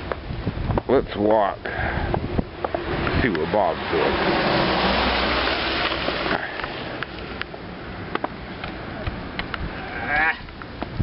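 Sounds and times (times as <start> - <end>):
blizzard wind buffeting microphone: 0.1 - 1.2, 1.8 - 5.8.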